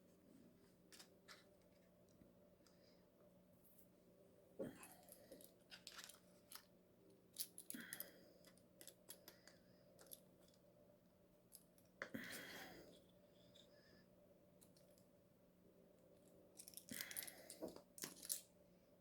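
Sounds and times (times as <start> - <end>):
faint steady hum: 0.0 - 19.0
small metal parts clicking: 5.0 - 6.7, 7.4 - 10.6, 16.6 - 18.5.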